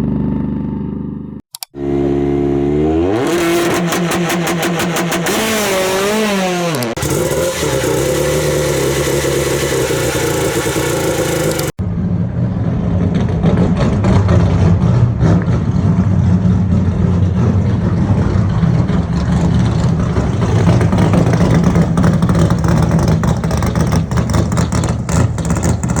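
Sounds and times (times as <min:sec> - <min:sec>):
race car engine running hard: 0:06.7 - 0:26.0.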